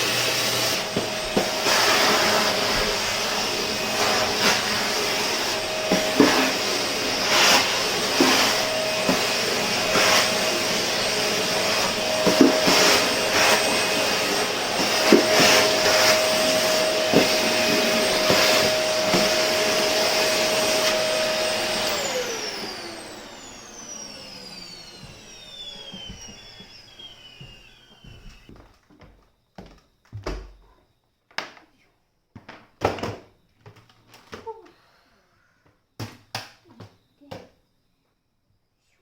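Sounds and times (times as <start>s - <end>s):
vacuum cleaner whining: 0.0s - 30.8s.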